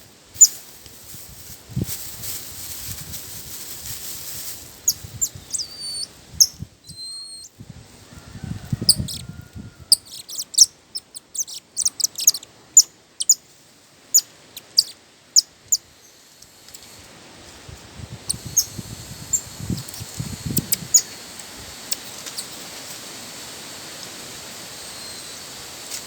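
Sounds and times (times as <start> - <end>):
birds chirping: 4.8 - 7.5, 9.9 - 13.4, 14.1 - 15.8.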